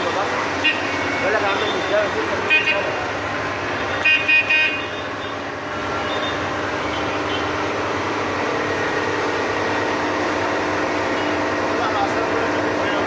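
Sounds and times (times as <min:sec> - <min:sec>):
vehicle horn toots: 0:03.9 - 0:05.4
engine humming: 0:04.9 - 0:13.0.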